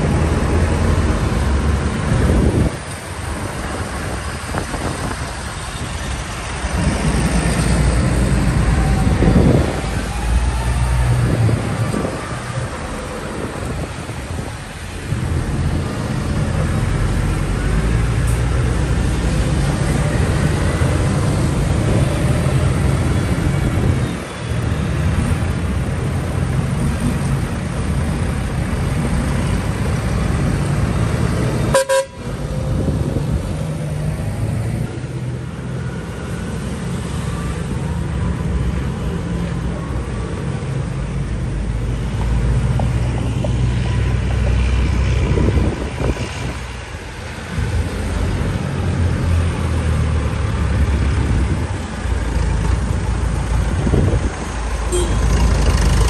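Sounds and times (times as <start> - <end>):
tractor engines running: 0.0 - 56.0
vehicle horn tooting: 31.7 - 32.2, 54.9 - 55.3.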